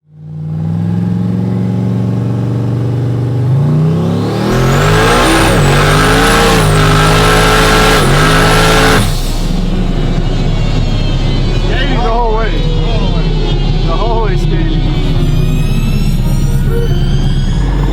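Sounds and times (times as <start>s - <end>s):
truck engine accelerating: 0.0s - 17.9s
turbo whistle: 14.8s - 17.9s.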